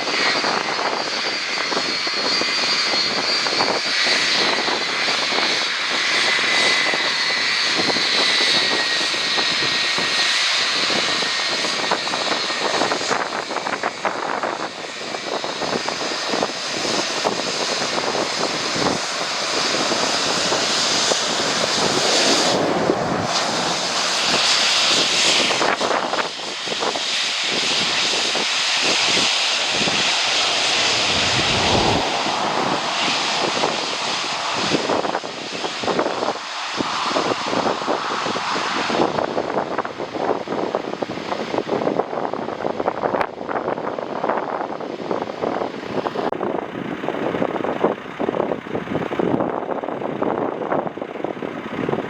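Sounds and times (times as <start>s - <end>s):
jet airliner passing: 0.0s - 52.0s
wind buffeting microphone: 0.0s - 52.0s.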